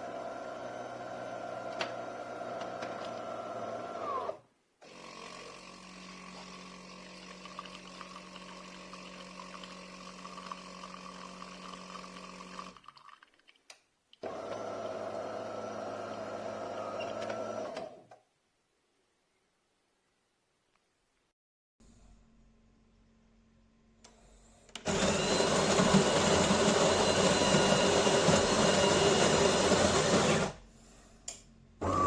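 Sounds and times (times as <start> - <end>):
espresso machine hum: 0.0 - 12.8, 14.3 - 17.8, 24.9 - 30.6.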